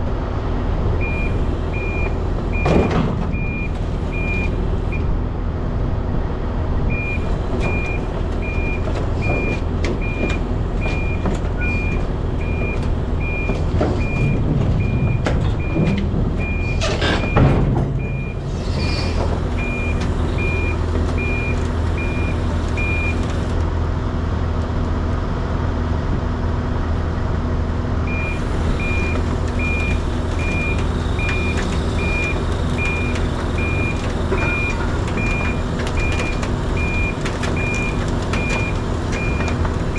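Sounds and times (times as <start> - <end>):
truck engine running: 0.1 - 39.9
backup alarm beeping: 19.6 - 23.2, 28.1 - 39.6.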